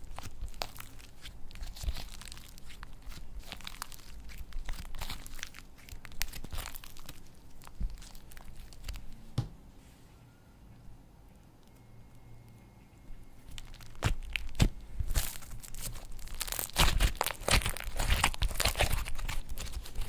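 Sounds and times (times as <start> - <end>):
slime squishing with crackling pops: 0.0 - 9.2, 13.3 - 20.0.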